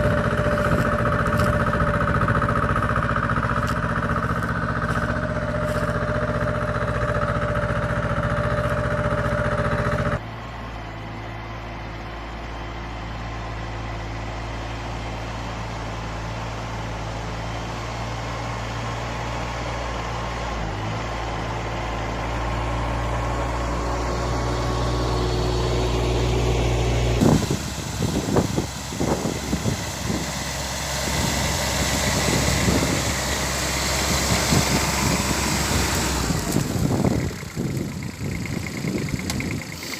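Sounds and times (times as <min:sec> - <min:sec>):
mini tractor engines running: 0:00.0 - 0:39.9.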